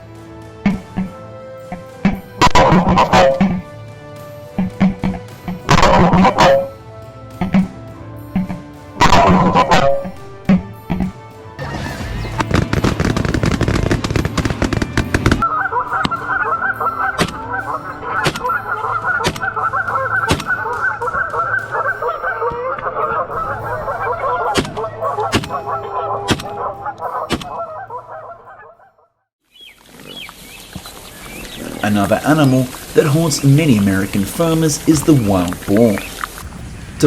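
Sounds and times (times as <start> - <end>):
geese honking: 0.0 - 36.4
sharp cracks: 8.4 - 16.4, 24.5 - 25.7, 26.3 - 27.6.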